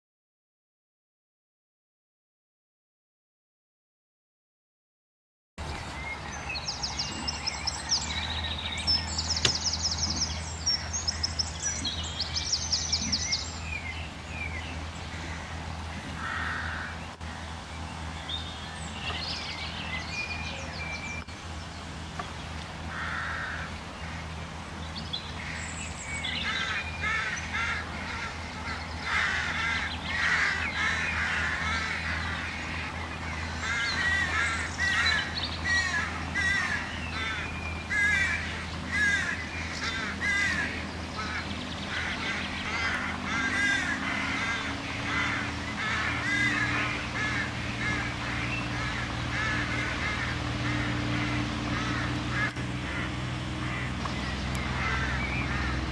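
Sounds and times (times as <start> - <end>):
birds chirping: 5.6 - 55.9
steady low hum: 5.6 - 55.9
harsh bird caws: 14.5 - 17.6, 22.8 - 24.4, 25.3 - 55.9.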